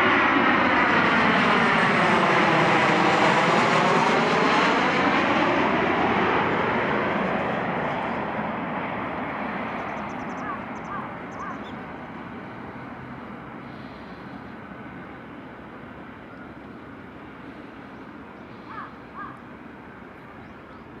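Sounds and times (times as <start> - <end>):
airplane engine roar: 0.0 - 21.0
short bird calls: 9.8 - 11.8, 17.9 - 19.5.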